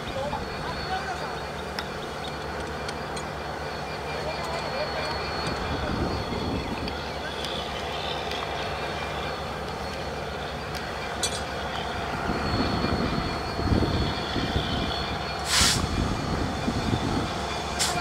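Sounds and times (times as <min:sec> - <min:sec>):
train rumbling past: 0:00.0 - 0:18.0
short hiss: 0:15.4 - 0:15.9.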